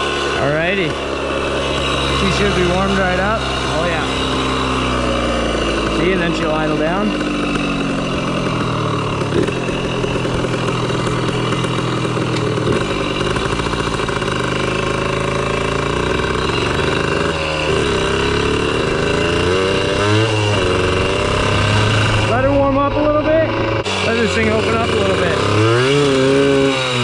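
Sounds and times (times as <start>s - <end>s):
two-stroke engine idling: 0.0s - 27.0s.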